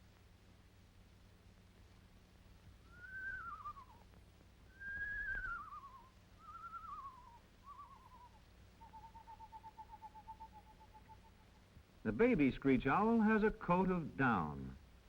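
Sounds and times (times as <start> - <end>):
owl quavering whinnies and trill: 4.8 - 11.5.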